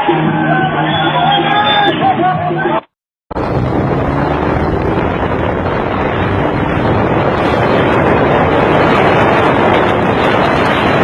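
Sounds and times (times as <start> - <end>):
motorcycle engine drone: 3.3 - 11.0
wind rushing over microphone: 3.3 - 11.0.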